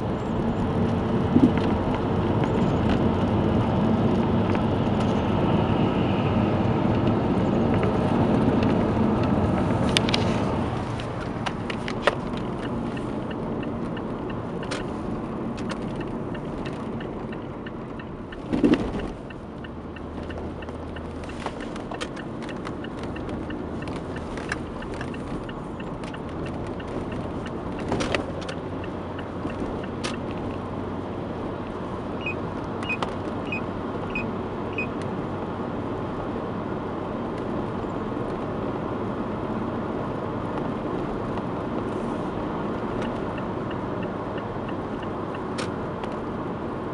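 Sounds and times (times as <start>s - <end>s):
car road noise: 0.0s - 46.9s.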